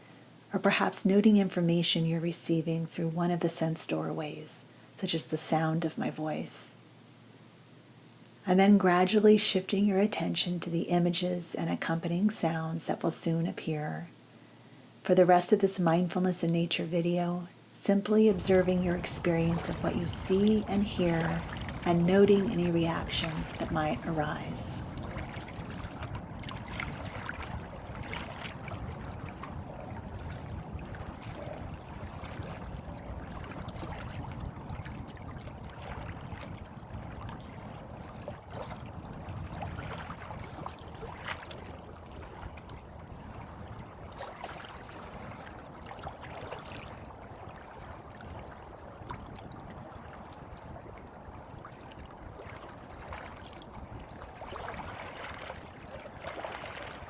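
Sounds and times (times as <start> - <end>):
faint water splashes: 17.4 - 57.0
water flowing and trickling: 18.3 - 57.0.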